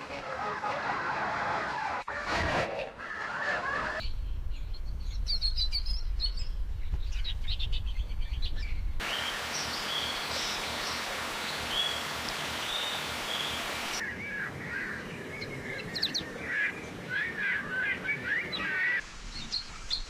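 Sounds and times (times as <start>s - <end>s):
small birds chirping: 4.0s - 20.0s
background hiss: 9.0s - 14.0s.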